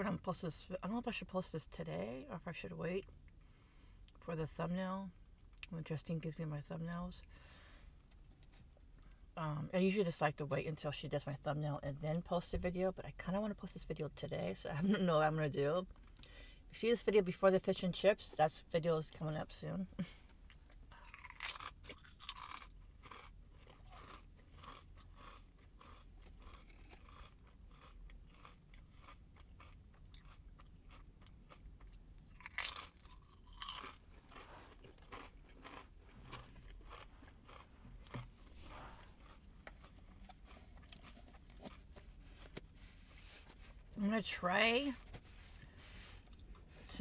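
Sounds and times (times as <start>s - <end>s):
chewing crisp chips: 20.0s - 42.6s.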